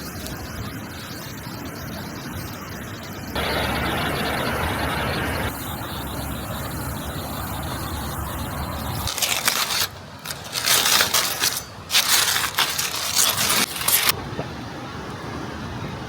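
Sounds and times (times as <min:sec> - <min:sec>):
steady rumbling background: 0:00.4 - 0:14.2
close crunching and crackling: 0:08.9 - 0:14.2.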